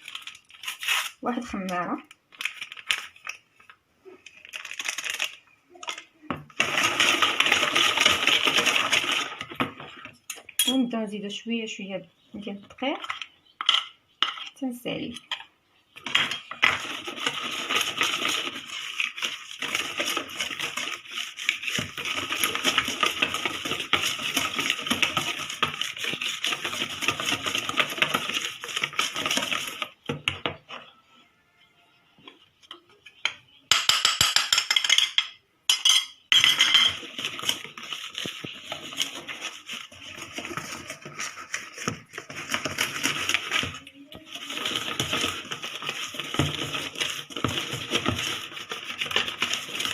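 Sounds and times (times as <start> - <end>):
whisk scraping a mixing bowl: 6.5 - 10.2, 16.0 - 30.8, 36.8 - 49.9.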